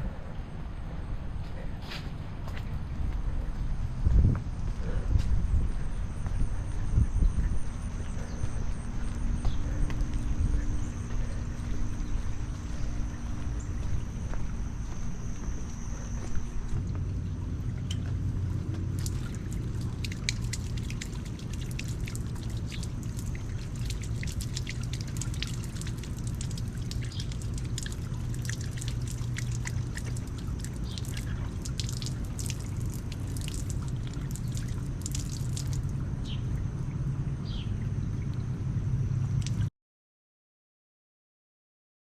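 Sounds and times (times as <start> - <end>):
low rumble: 0.0 - 39.7
rain dripping and splashing: 6.6 - 38.6, 39.3 - 39.7.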